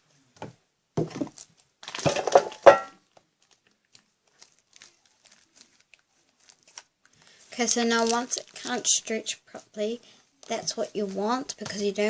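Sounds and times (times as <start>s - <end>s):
slime squelching and crackling: 3.3s - 12.0s.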